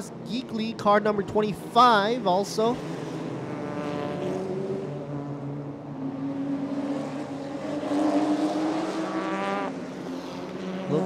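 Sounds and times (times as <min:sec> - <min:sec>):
race car engines passing: 0:00.0 - 0:11.0
car engine accelerating: 0:02.5 - 0:11.0.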